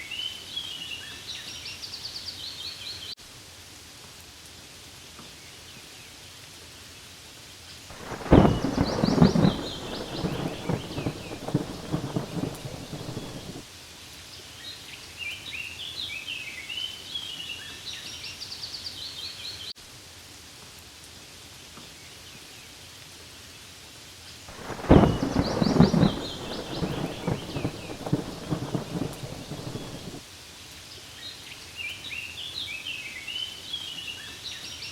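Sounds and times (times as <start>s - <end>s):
rain falling on leaves: 0.0s - 34.9s
thunder rumble: 7.9s - 13.6s, 24.5s - 30.2s
birds chirping: 8.0s - 13.6s, 24.6s - 30.2s.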